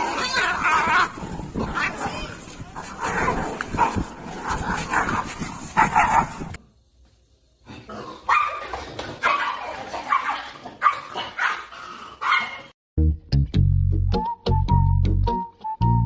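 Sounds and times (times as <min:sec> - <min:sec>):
dog barking and yipping: 0:04.9 - 0:06.5, 0:08.3 - 0:12.7.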